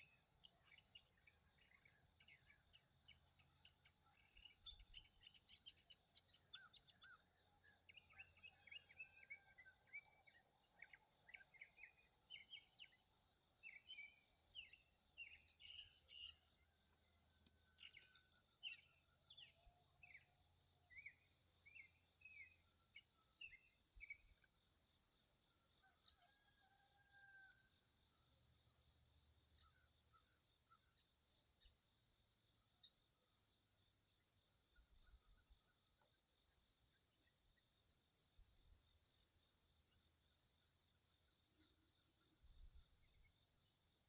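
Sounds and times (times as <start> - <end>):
songbird chirping: 10.9 - 24.8.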